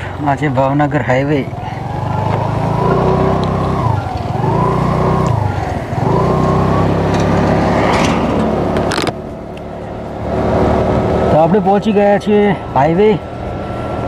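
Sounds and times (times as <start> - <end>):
motorcycle engine accelerating: 0.6 - 12.1.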